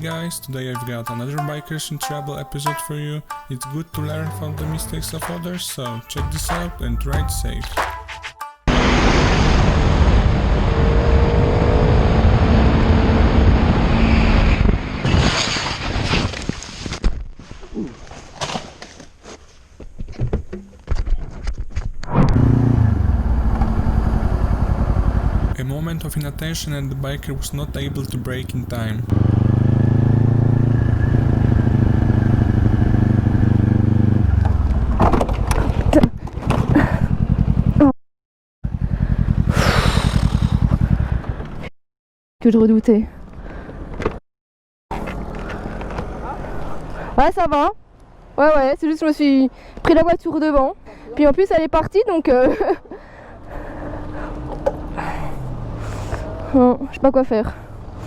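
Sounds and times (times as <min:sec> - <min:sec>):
motorcycle engine: 0:08.7 - 0:15.0, 0:22.3 - 0:37.9, 0:38.6 - 0:41.7, 0:53.3 - 0:56.8
motorcycle crashing: 0:12.4 - 0:17.2, 0:39.3 - 0:41.4.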